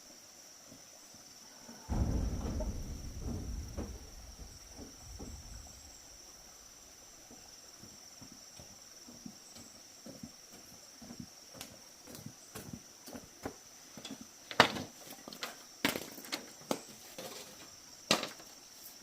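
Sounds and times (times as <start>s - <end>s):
insects chirring: 0.0s - 19.0s
heavy low thump with rustling: 1.9s - 7.2s.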